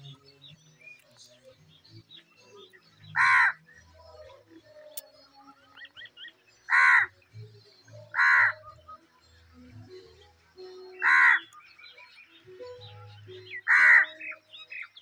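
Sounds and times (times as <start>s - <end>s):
small birds chirping faintly: 0.0s - 15.0s
bird calling loudly: 11.0s - 11.6s, 13.5s - 15.0s.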